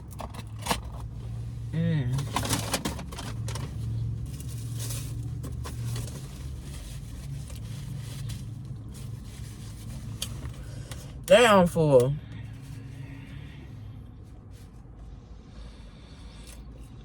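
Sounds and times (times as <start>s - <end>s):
crinkling handling noises: 0.0s - 11.2s
low steady hum: 0.0s - 17.0s.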